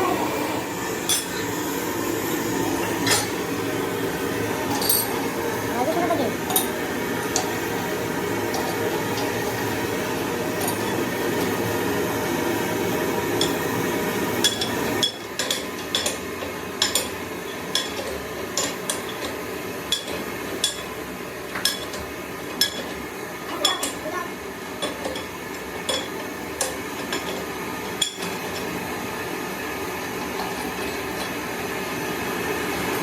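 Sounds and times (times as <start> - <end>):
steady hum: 0.0 - 33.0
metal clinking and tapping: 1.1 - 1.4, 4.7 - 5.2, 14.4 - 16.2, 16.8 - 20.9, 21.5 - 22.0, 22.6 - 23.0, 24.8 - 27.4.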